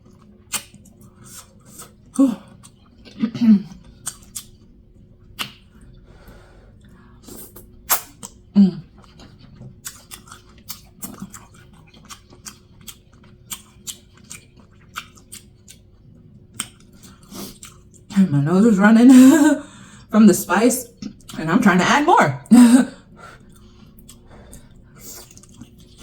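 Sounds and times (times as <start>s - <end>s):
wet chewing and lip-smacking: 0.0s - 6.0s, 6.8s - 18.1s, 20.9s - 21.4s, 23.3s - 26.0s.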